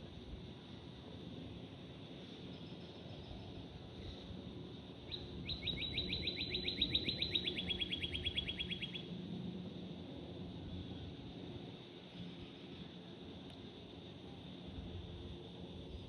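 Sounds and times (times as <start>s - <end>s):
songbird trilling: 5.1s - 9.1s.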